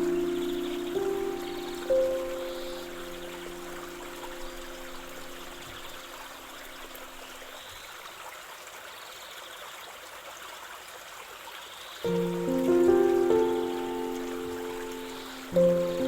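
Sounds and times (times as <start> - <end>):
soft relaxation music: 0.0 - 7.5, 12.0 - 16.0
stream trickling: 0.0 - 16.0.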